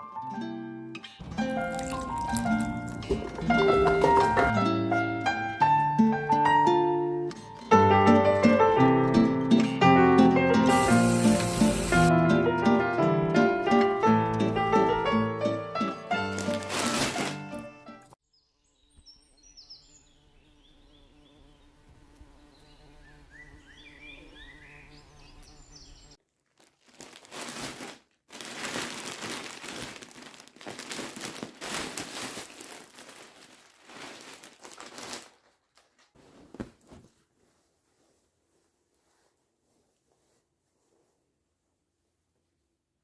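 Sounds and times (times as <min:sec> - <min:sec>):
packaging crinkling and rustling: 0:01.2 - 0:04.5, 0:16.2 - 0:17.7, 0:26.3 - 0:37.2.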